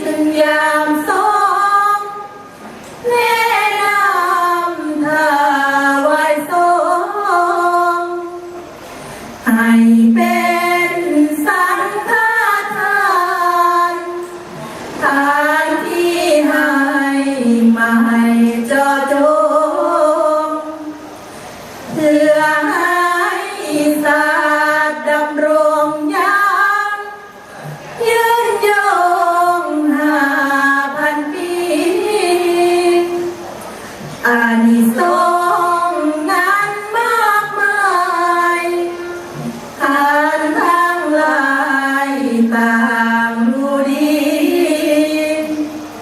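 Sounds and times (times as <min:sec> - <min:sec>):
women chanting unaccompanied: 0:15.0 - 0:20.9, 0:21.9 - 0:27.2, 0:34.2 - 0:45.8.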